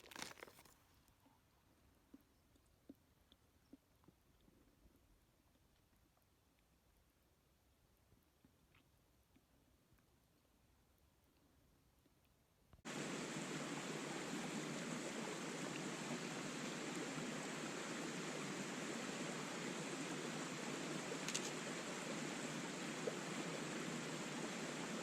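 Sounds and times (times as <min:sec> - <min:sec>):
stream rushing: 0:12.9 - 0:25.0.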